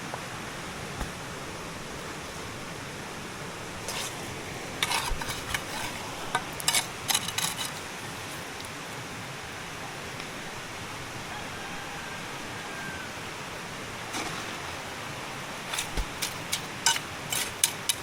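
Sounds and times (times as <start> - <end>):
river water rushing: 0.1 - 18.0
hard objects clacking together: 4.8 - 7.9, 15.7 - 18.0.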